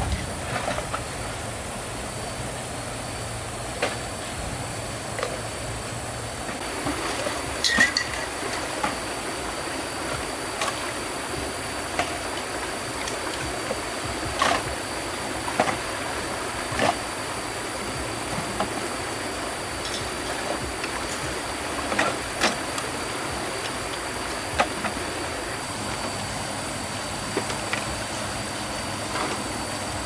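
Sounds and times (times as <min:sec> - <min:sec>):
river water rushing: 0:06.4 - 0:30.0.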